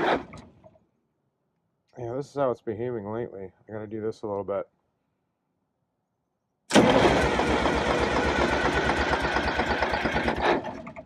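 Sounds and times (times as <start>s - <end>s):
diesel engine cranking: 6.7s - 11.0s
diesel engine running: 6.7s - 11.0s.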